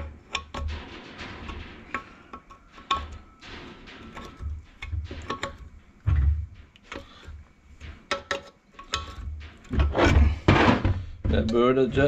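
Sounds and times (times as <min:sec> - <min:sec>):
dull low knocks: 0:03.2 - 0:06.8, 0:09.6 - 0:12.0.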